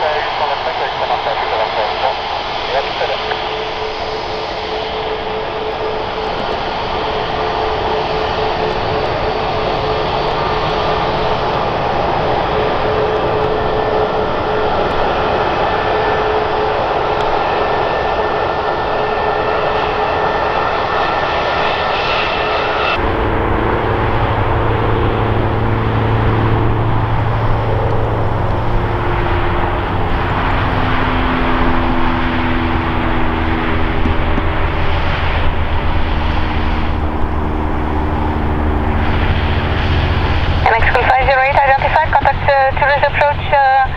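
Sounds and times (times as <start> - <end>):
jet engines roaring with whine: 0.0 - 43.9
low engine hum with tones: 5.2 - 17.4, 23.0 - 43.9.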